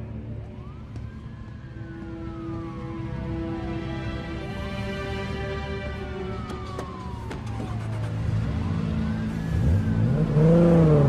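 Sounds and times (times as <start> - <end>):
siren wailing: 0.0 - 11.0
car engine revving: 7.6 - 11.0.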